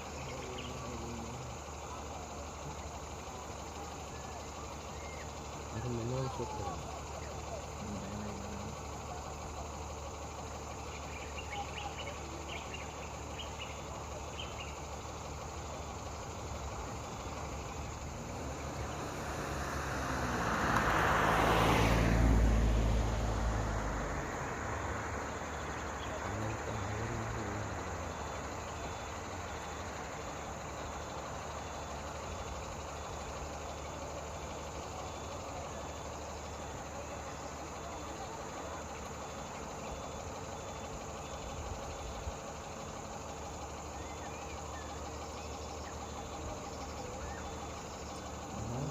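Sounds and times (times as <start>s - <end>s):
steady low hum: 0.0s - 34.0s
insects chirping: 0.0s - 48.9s
vehicle passing by: 16.9s - 30.1s, 45.2s - 48.9s.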